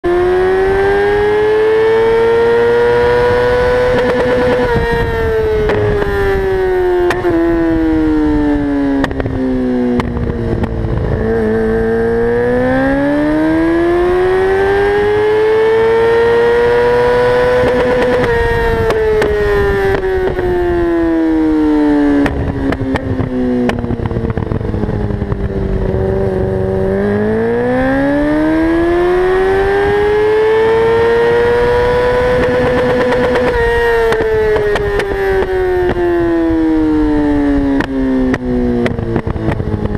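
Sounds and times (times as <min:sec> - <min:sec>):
motorcycle engine revving: 0:00.0 - 0:39.9
exhaust backfire pops: 0:07.0 - 0:07.4, 0:09.0 - 0:11.4, 0:22.2 - 0:26.2, 0:37.7 - 0:39.9.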